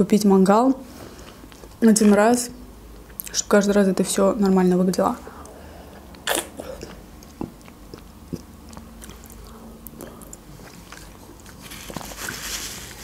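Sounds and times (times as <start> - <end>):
person chewing food: 5.4 - 13.0.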